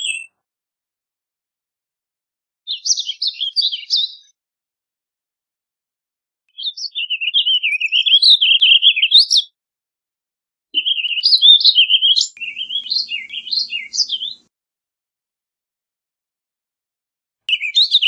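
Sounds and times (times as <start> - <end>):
bird singing warbled phrases: 0.0 - 0.4, 2.7 - 4.4, 6.5 - 9.6, 10.8 - 14.5, 17.5 - 18.0.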